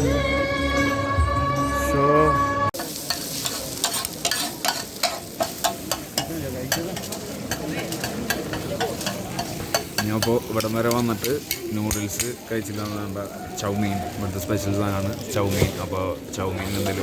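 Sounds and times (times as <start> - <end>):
metal spatula scraping a pan: 2.8 - 12.9
noodles sizzling in a wok: 2.8 - 17.0.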